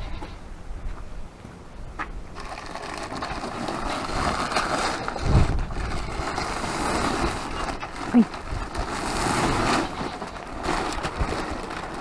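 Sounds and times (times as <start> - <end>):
sacks rustling and scraping: 2.3 - 12.0.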